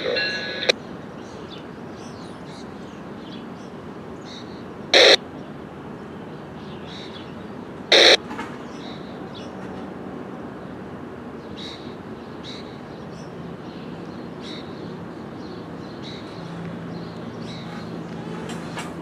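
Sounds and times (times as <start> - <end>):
low engine drone: 0.0 - 0.8
birds chirping: 0.0 - 19.0.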